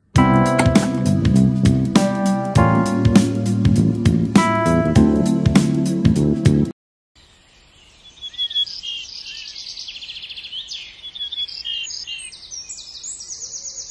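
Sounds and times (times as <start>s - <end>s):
small birds chirping: 7.2s - 13.9s.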